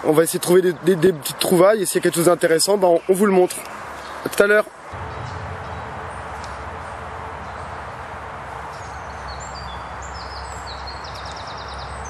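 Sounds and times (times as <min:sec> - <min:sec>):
birds singing: 0:00.3 - 0:08.1, 0:08.7 - 0:12.0
low rumble: 0:04.9 - 0:08.2.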